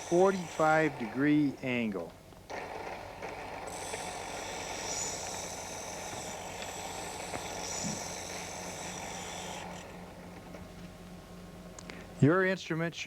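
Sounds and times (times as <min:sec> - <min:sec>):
disc honing machine running: 0:00.0 - 0:11.8
scraping hiss of metal sharpening: 0:03.7 - 0:09.9.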